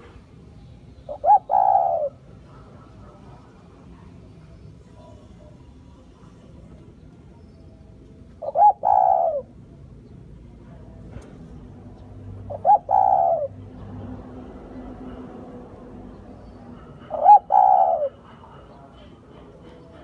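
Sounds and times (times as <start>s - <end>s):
dove cooing: 1.0s - 3.3s, 8.4s - 9.8s, 12.5s - 13.6s, 16.8s - 18.9s.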